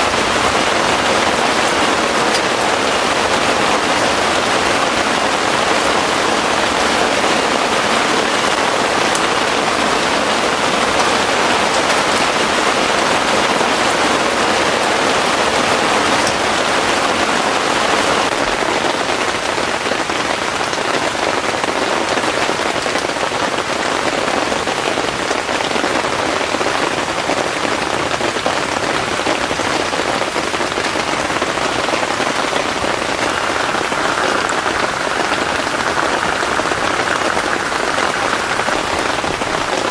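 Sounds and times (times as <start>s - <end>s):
heavy rain hissing: 0.0s - 39.9s
raindrop ticks: 0.3s - 4.0s, 5.6s - 13.8s, 16.0s - 16.6s, 32.0s - 39.9s.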